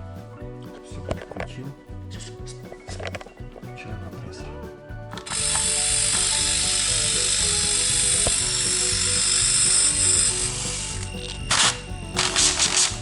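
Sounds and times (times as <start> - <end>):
loud steady hiss: 5.2 - 13.0
refrigerator compressor rattling buzz: 5.2 - 13.0.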